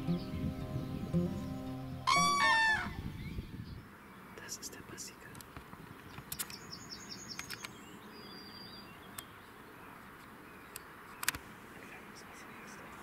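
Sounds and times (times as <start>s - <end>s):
songbirds calling faintly: 0.0s - 13.0s
sharp clicks: 5.3s - 6.6s, 7.3s - 7.8s, 10.7s - 11.4s.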